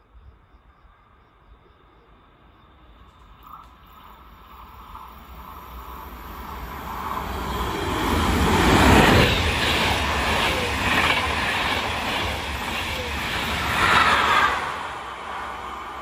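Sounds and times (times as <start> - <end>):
train wheels rushing over rails: 4.4 - 16.0.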